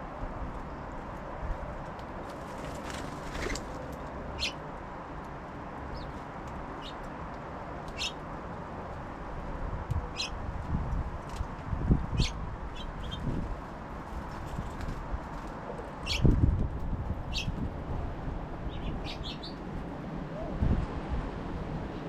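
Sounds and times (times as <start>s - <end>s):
songbirds chirping: 0.6s - 8.9s, 18.6s - 19.7s.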